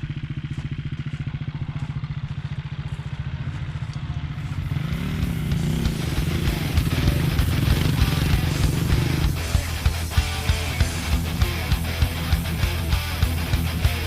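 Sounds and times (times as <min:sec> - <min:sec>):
dirt bike engine idling: 0:00.0 - 0:14.0
music: 0:05.4 - 0:14.0.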